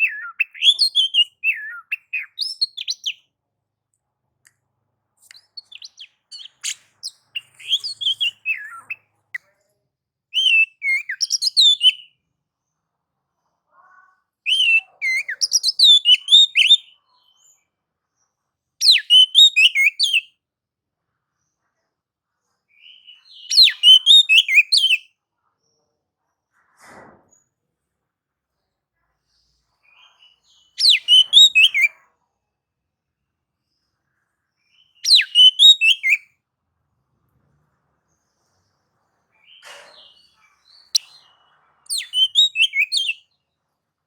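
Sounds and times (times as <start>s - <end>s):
bird singing chattering phrases: 0.0s - 3.2s, 5.3s - 9.1s, 10.4s - 12.0s, 14.5s - 16.8s, 23.5s - 25.0s, 30.6s - 31.9s, 35.0s - 36.2s, 41.9s - 43.2s.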